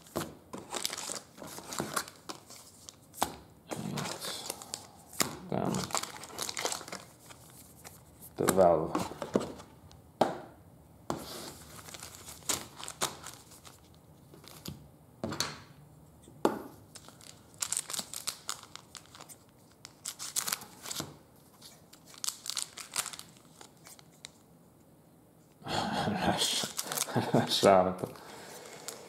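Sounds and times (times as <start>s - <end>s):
cards being handled: 0.1s - 9.7s
wrappers tearing and crinkling: 0.6s - 3.0s, 3.8s - 7.8s, 11.4s - 14.7s, 16.9s - 21.0s, 21.6s - 24.3s, 26.5s - 27.6s.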